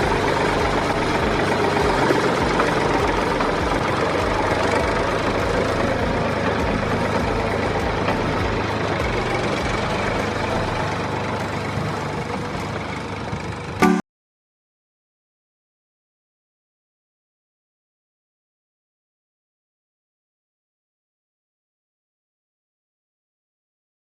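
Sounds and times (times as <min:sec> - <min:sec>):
heavy engine idling: 0:00.0 - 0:14.0.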